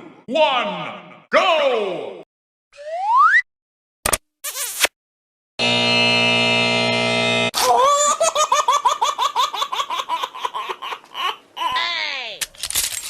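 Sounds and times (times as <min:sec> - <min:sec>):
high-pitched laughter: 0:07.6 - 0:12.0.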